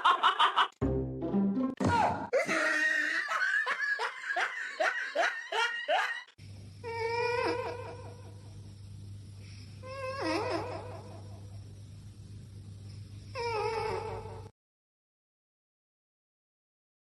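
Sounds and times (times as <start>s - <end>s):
person laughing hard: 0.0s - 0.8s, 2.3s - 6.3s
low steady hum: 6.4s - 13.4s.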